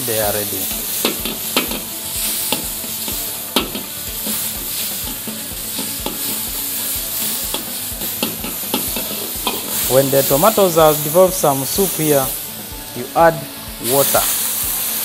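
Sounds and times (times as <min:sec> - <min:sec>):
tomatoes sizzling in hot oil: 0:00.0 - 0:15.0
steel ladle knocking against wok: 0:03.6 - 0:03.9, 0:05.1 - 0:06.4, 0:07.5 - 0:09.8.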